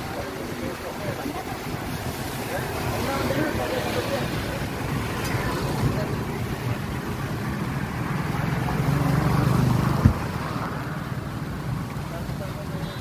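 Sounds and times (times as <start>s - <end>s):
vehicle engine passing: 0.0s - 12.8s.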